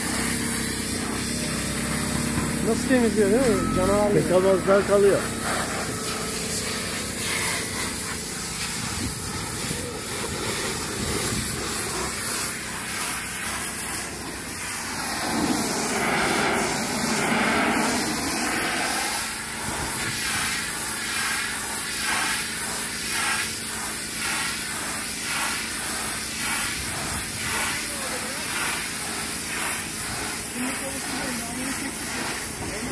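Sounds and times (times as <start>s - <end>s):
pressure washer spraying hull: 0.0s - 32.9s.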